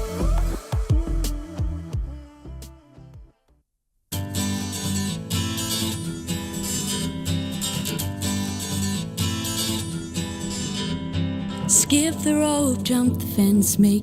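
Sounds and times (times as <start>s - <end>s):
bass line: 0.0s - 3.3s
strummed acoustic guitar: 4.1s - 14.0s.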